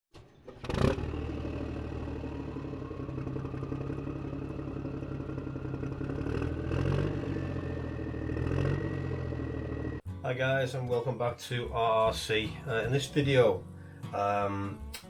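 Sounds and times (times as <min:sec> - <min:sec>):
engine idling: 0:00.1 - 0:10.0.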